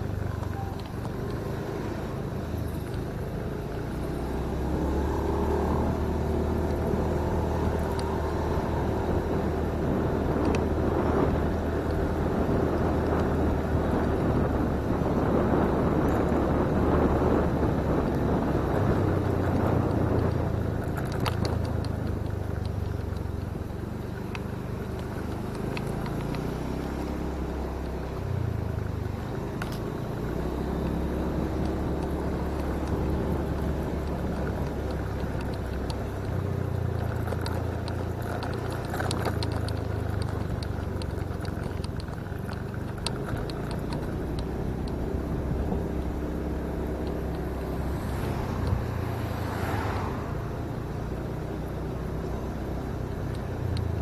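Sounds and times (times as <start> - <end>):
motorcycle engine running: 0.0 - 54.0
road noise: 0.0 - 54.0
wind noise: 4.7 - 22.4.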